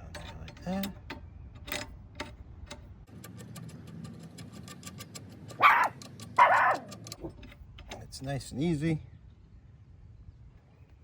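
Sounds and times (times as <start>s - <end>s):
dog barking: 5.6s - 6.9s.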